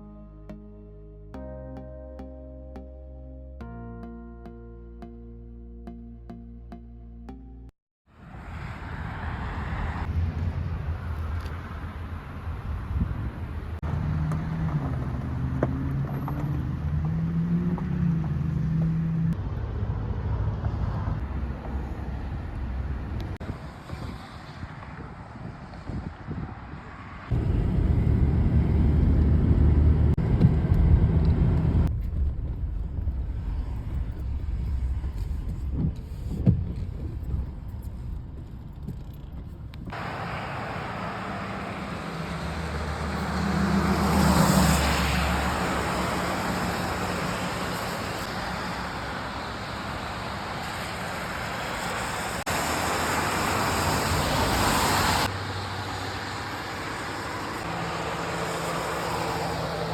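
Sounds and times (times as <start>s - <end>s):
vehicle passing: 8.2s - 31.9s, 40.0s - 59.9s
vehicle engines: 8.2s - 59.9s.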